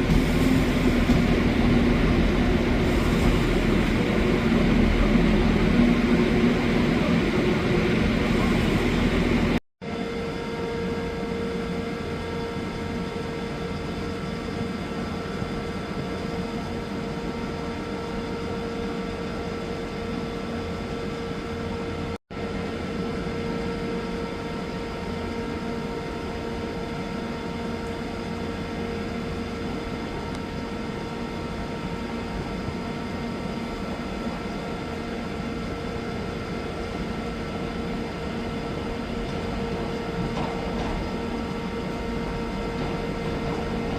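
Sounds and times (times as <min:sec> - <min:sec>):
steady hum: 0:00.0 - 0:09.6
train rumbling: 0:00.0 - 0:09.6, 0:35.3 - 0:43.9.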